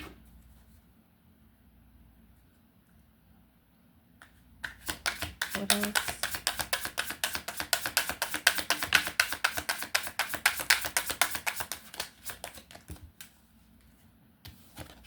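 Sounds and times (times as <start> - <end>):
soft card sounds: 4.2 - 15.0
cards being shuffled: 4.6 - 13.4, 14.5 - 15.0.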